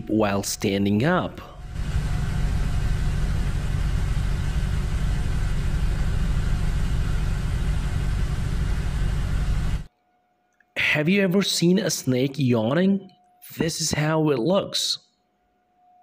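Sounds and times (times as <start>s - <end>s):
constant hiss: 0.0s - 14.4s
car engine idling: 1.7s - 9.9s.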